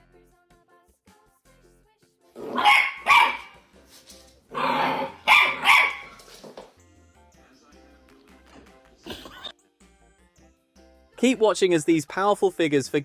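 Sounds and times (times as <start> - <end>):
quiet background music: 0.0 - 13.0
dog barking: 2.4 - 3.6, 4.5 - 6.3.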